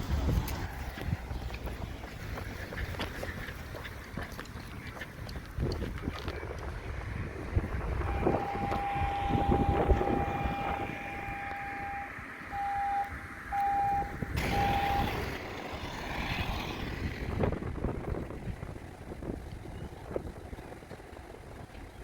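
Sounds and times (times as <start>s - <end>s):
passing traffic rumble: 0.0s - 22.0s
vehicle horn honking: 8.0s - 15.2s.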